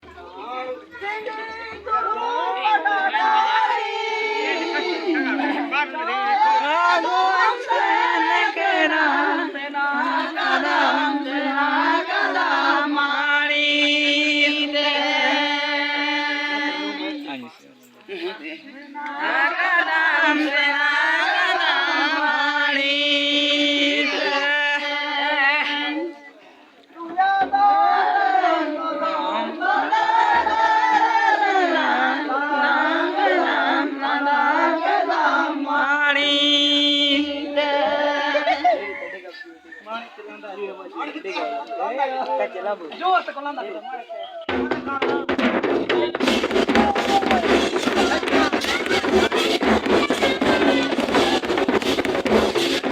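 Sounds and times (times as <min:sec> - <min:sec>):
voices singing a chant: 0:00.0 - 0:17.5, 0:18.4 - 0:52.9.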